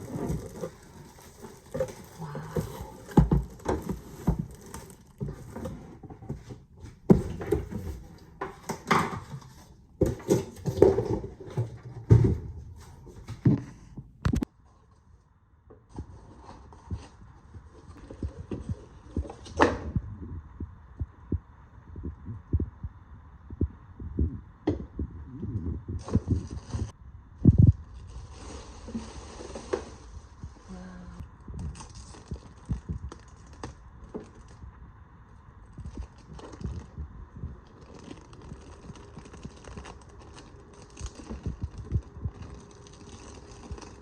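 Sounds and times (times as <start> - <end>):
packaging handled and rustling: 0.0 - 14.5, 31.6 - 34.6, 35.6 - 44.0
faint steady hum: 0.0 - 44.0
low thumps: 19.6 - 27.9.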